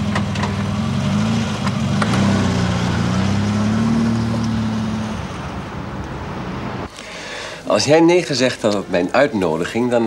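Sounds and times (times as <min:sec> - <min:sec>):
car engine pulling away: 0:00.0 - 0:06.9.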